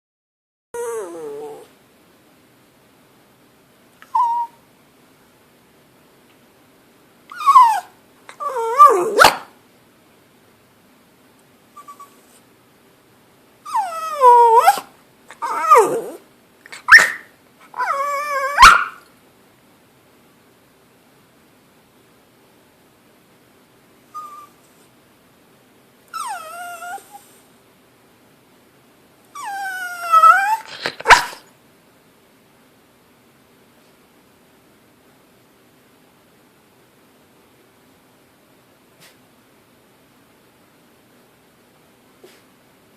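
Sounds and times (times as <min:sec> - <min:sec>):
dog whining: 0:00.8 - 0:01.8, 0:04.0 - 0:04.6, 0:07.3 - 0:09.5, 0:11.7 - 0:12.4, 0:13.6 - 0:19.1, 0:24.1 - 0:24.7, 0:26.1 - 0:27.4, 0:29.3 - 0:31.4
dog barking: 0:09.1 - 0:09.5, 0:18.6 - 0:19.0, 0:31.0 - 0:31.4.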